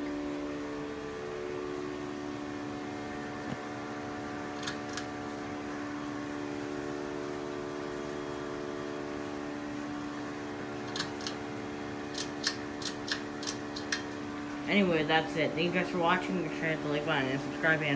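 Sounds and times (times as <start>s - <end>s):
ceiling fan motor hum: 0.0s - 17.9s
light clicks: 10.9s - 11.4s, 12.1s - 14.1s.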